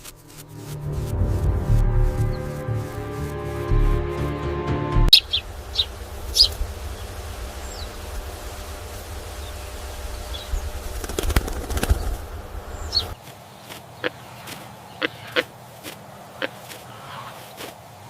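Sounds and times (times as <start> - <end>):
wings fluttering: 0.0 - 4.2, 5.1 - 17.9
background music: 0.0 - 9.2
steady low rumble: 0.0 - 13.2
birds chirping: 5.1 - 17.6.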